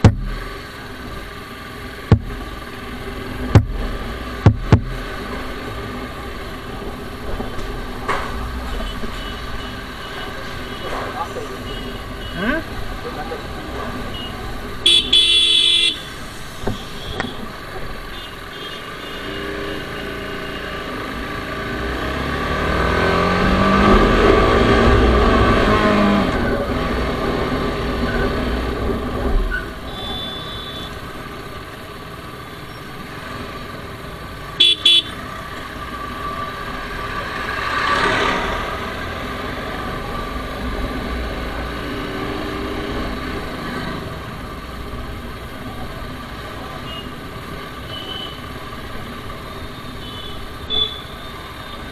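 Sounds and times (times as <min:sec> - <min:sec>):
motorcycle engine revving: 0:00.0 - 0:06.4
horn beeps: 0:29.9 - 0:31.0, 0:34.6 - 0:35.2, 0:49.8 - 0:51.8.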